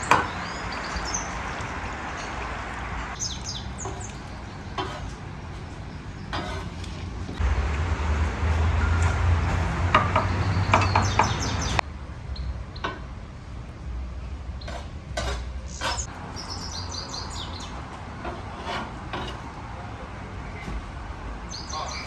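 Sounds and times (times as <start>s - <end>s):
small birds chirping: 0.0s - 6.7s, 7.3s - 13.0s, 15.5s - 17.9s, 21.3s - 22.0s.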